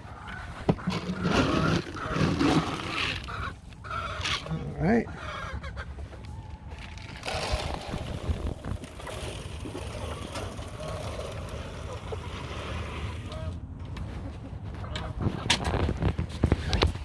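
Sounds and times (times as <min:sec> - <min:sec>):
feed pouring into troughs: 0:00.8 - 0:03.3, 0:06.8 - 0:13.3.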